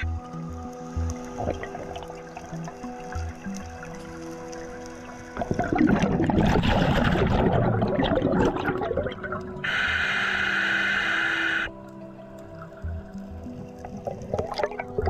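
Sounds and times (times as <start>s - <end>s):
exhaled bubbles burbling: 1.3s - 3.9s, 5.3s - 10.0s, 13.4s - 15.0s
regulator inhalation hiss: 9.6s - 11.8s.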